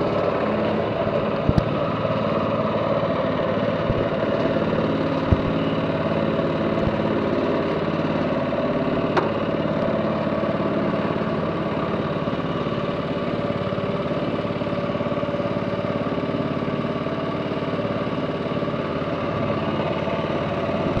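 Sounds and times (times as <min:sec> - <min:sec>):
boat engine running: 0:00.0 - 0:11.6, 0:19.7 - 0:21.0.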